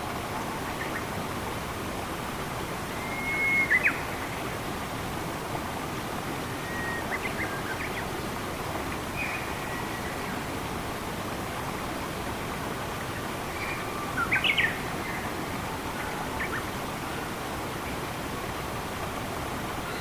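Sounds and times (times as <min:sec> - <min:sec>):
rushing stream water: 0:00.0 - 0:20.0
small bird whistling: 0:03.0 - 0:04.0.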